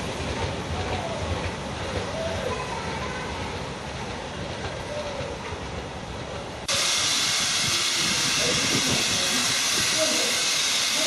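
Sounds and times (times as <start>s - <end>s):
steam locomotive rumble: 0.0s - 11.0s
steam hissing: 6.6s - 11.0s.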